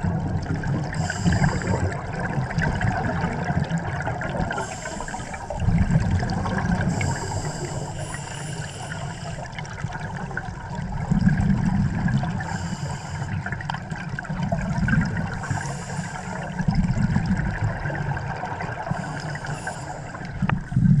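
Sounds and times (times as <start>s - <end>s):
exhaled bubbles rushing: 0.0s - 7.9s, 8.8s - 12.6s, 13.3s - 21.0s
regulator inhale hiss: 0.9s - 2.0s, 4.5s - 5.6s, 6.8s - 9.6s, 12.4s - 13.5s, 15.3s - 16.6s, 18.9s - 20.5s.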